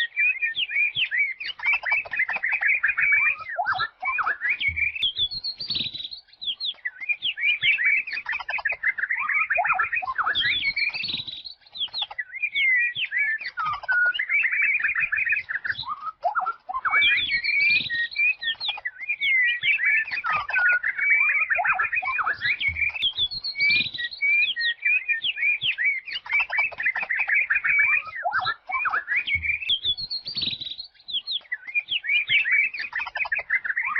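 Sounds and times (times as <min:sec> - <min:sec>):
songbirds singing: 0:00.0 - 0:33.9.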